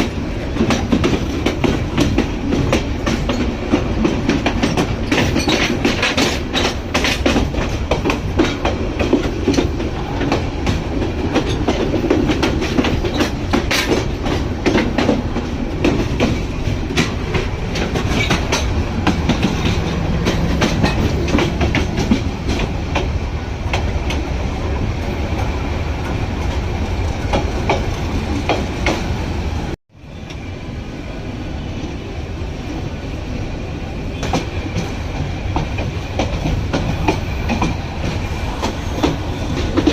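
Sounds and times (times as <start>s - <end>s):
train wheels clacking on rails: 0.0s - 30.5s, 32.6s - 39.9s
train rumbling: 0.0s - 39.9s.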